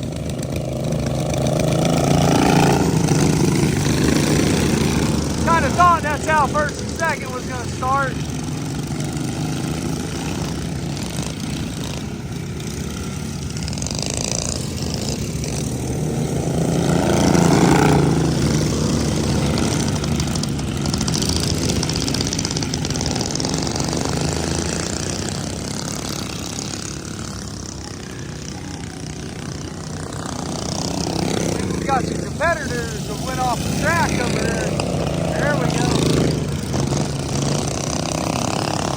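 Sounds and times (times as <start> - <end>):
lawn mower engines racing: 0.0 - 38.9.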